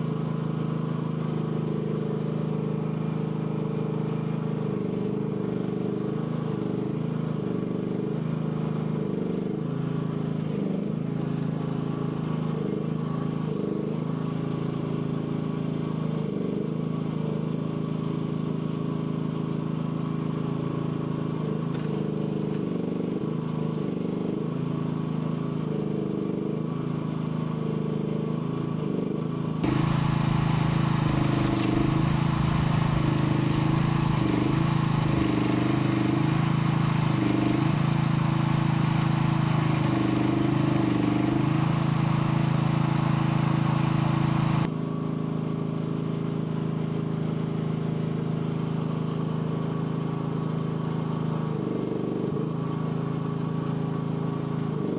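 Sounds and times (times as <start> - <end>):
excavator engine running: 29.6 - 44.7.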